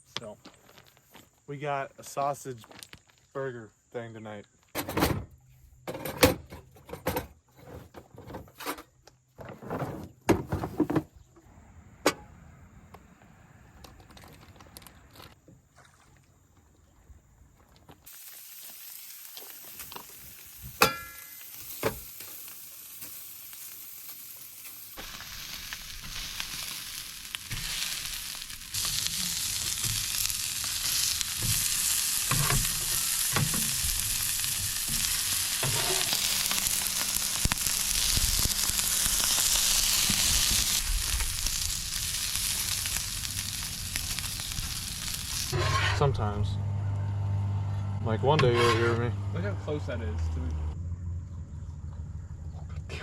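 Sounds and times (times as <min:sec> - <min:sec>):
faint hiss: 0:18.1 - 0:45.5
sausage sizzling in a pan: 0:18.1 - 0:45.6.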